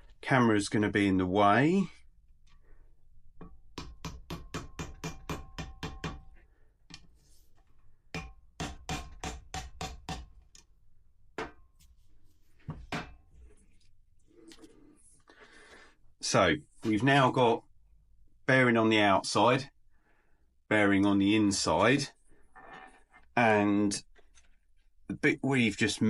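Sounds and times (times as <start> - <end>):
hammer tapping metal: 3.4 - 6.3, 8.1 - 10.4.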